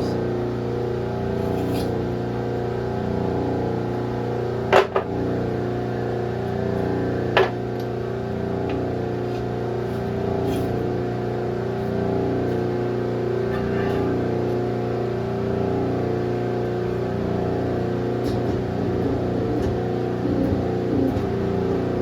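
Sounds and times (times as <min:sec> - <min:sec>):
hydraulic tooling humming: 0:05.3 - 0:22.0.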